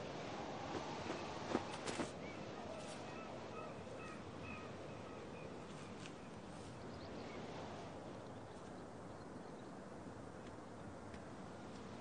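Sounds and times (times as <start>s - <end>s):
steady rushing noise: 0.0s - 2.2s
faint bird calls: 2.0s - 6.3s.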